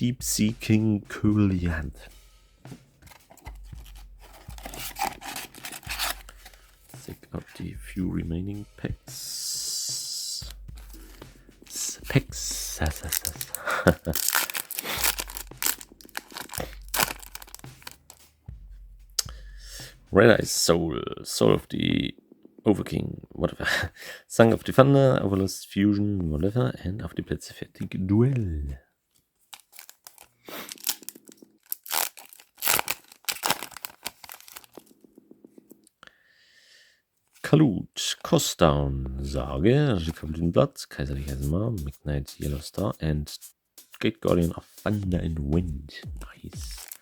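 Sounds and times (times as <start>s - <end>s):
foil wrappers crinkling and tearing: 3.1s - 7.1s, 11.7s - 18.2s, 29.5s - 34.9s, 46.6s - 47.0s.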